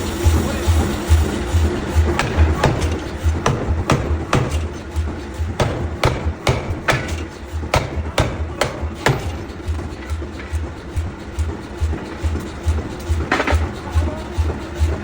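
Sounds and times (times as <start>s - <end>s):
background music with low beat: 0.0s - 15.0s
hammer striking metal: 1.9s - 15.0s.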